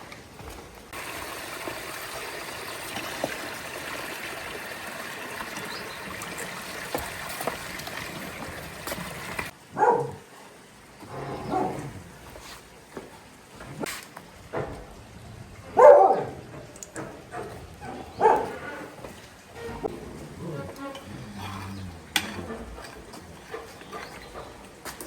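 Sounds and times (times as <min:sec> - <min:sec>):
running water: 0:00.0 - 0:25.0
dog barking: 0:09.7 - 0:10.2, 0:15.7 - 0:16.4, 0:17.4 - 0:18.6.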